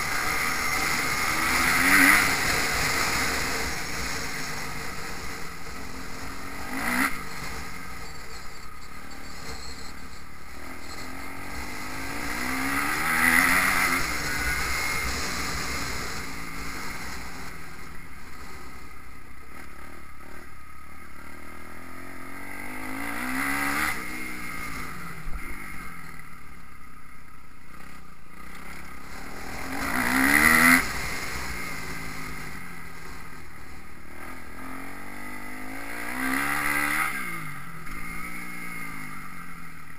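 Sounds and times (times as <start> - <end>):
motocross engines revving: 0.0 - 17.8, 28.5 - 39.1.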